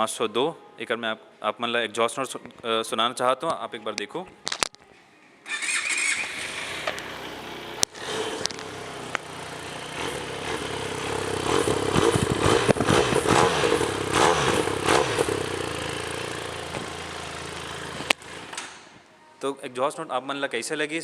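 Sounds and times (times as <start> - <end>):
motorcycle engine idling and revving: 5.5 - 18.9.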